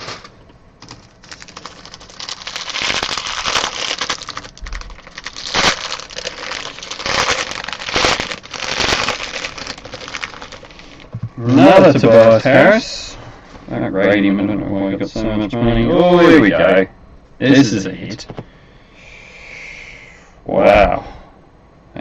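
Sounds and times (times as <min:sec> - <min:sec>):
plastic wrapper crinkling: 0:00.0 - 0:12.2.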